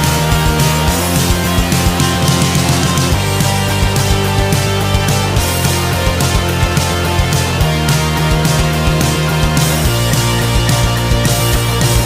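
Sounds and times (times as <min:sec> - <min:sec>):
bass guitar: 0:00.0 - 0:12.0
distorted electric guitar: 0:00.0 - 0:12.0
drum beat: 0:00.0 - 0:12.0.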